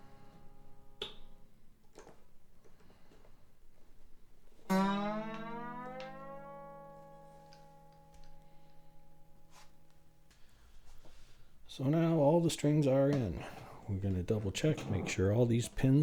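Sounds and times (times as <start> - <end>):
acoustic guitar strings ringing: 4.6 - 10.2.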